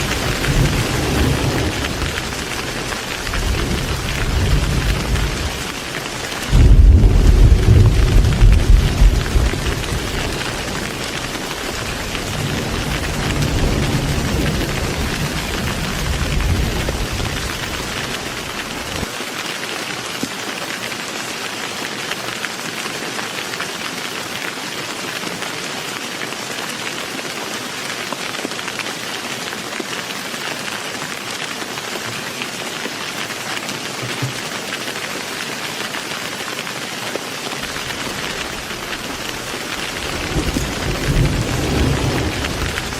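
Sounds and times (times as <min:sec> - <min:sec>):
low thunder rumble: 0:00.0 - 0:05.8, 0:06.4 - 0:19.1, 0:37.6 - 0:42.9
heavy rain falling: 0:00.0 - 0:42.9.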